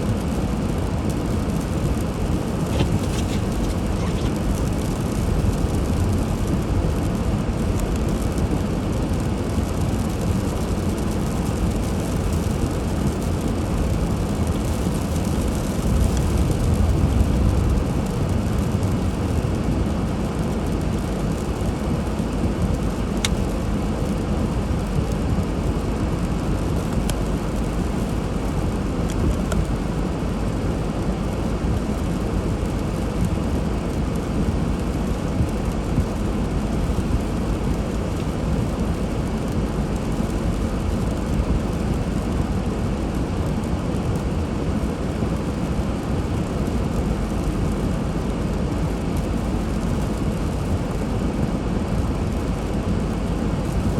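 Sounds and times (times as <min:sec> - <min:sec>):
car driving on snowy road: 0:00.0 - 0:53.9.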